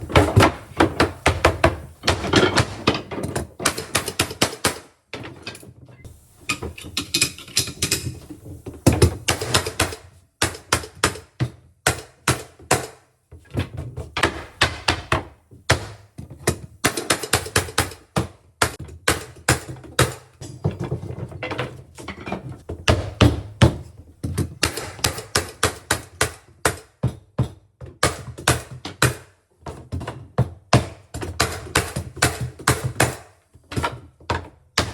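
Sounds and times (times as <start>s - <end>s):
knocks on hardwood floorboards: 0.0s - 4.0s, 13.5s - 16.7s, 22.7s - 34.9s.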